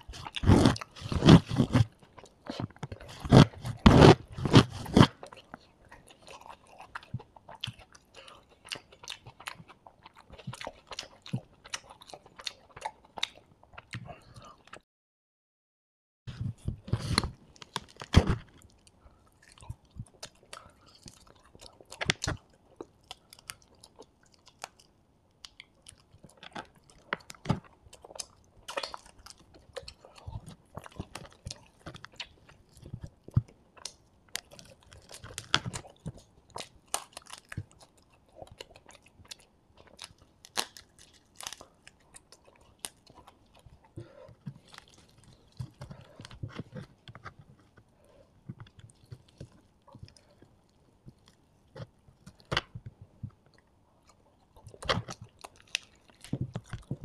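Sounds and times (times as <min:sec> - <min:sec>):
chewing and biting fried food: 0:00.0 - 0:14.8, 0:16.3 - 0:57.0
wet mouth clicks and crunches: 0:16.8 - 0:57.0.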